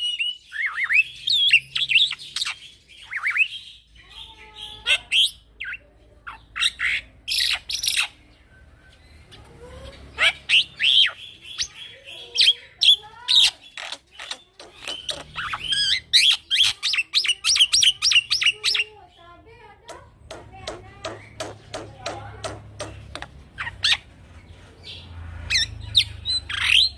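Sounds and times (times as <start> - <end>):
bird whistles and chirps: 0.0 - 3.9.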